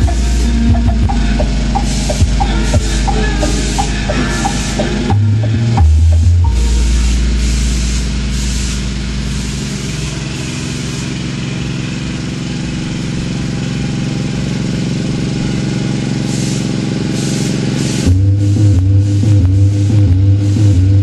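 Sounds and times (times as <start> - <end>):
lawn mower engine running: 0.0 - 20.7.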